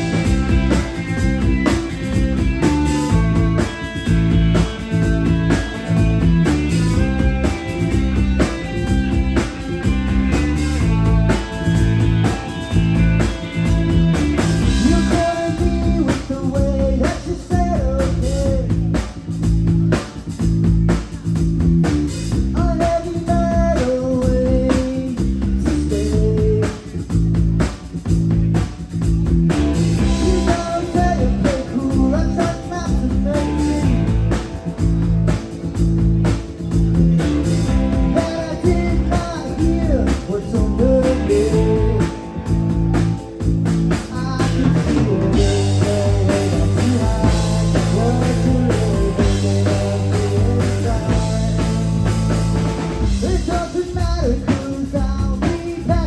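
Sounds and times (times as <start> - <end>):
drum kit: 0.0 - 56.0
electric guitar: 0.0 - 56.0
person singing: 14.7 - 19.0, 22.6 - 27.0, 30.0 - 34.2, 38.0 - 43.1, 43.9 - 52.5, 53.1 - 56.0.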